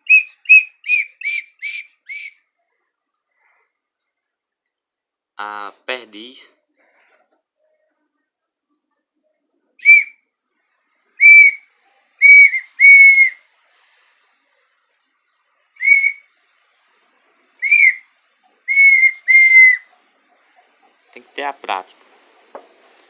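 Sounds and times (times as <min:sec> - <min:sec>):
wooden bird call whistling: 0:00.0 - 0:02.5, 0:09.8 - 0:10.3, 0:11.2 - 0:13.4, 0:15.8 - 0:16.4, 0:17.6 - 0:20.0.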